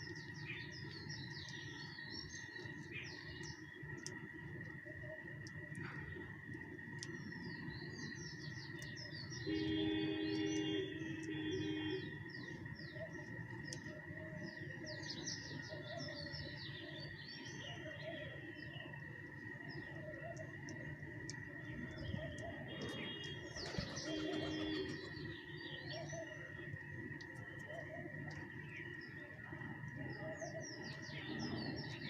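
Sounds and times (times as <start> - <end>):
small birds chirping: 0.0 - 32.0
steady high whine: 0.0 - 32.0
low horn-like tone: 9.4 - 12.1.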